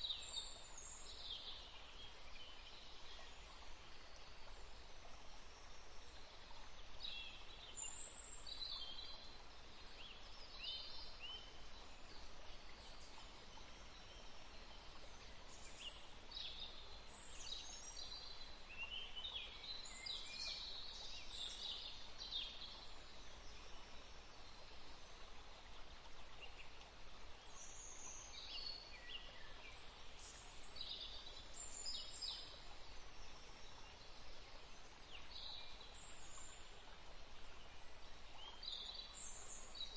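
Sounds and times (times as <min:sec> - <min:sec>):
faint steady hiss: 0:00.0 - 0:39.9
songbirds chirping: 0:00.0 - 0:39.9.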